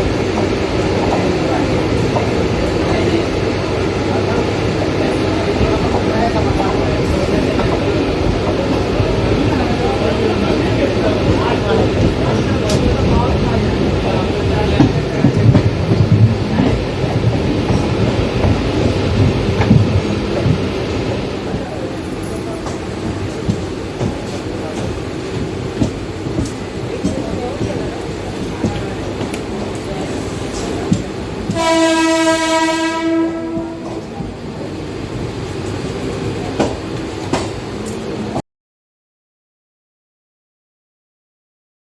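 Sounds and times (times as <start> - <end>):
train rumbling on rails: 0.0 - 38.4
wheels clacking over rail joints: 0.2 - 38.2
train horn blast: 31.5 - 34.1.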